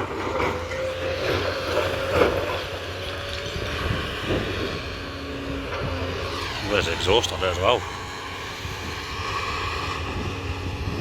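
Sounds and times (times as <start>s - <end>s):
demolition machinery running: 0.0s - 11.0s.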